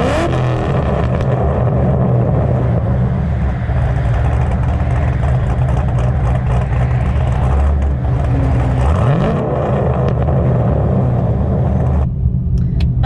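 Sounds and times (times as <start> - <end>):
car engine revving: 4.7 - 11.8.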